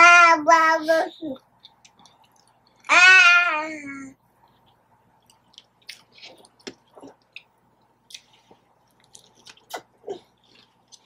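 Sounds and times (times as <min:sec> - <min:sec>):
chewing and biting food: 0:05.2 - 0:11.0.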